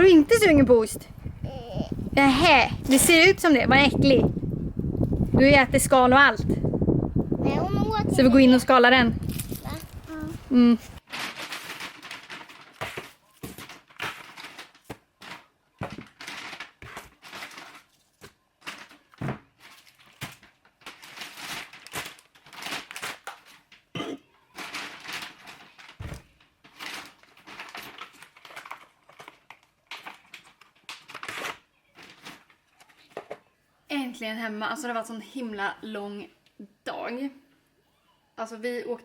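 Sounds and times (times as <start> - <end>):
material rustling and crinkling: 9.2 - 23.9.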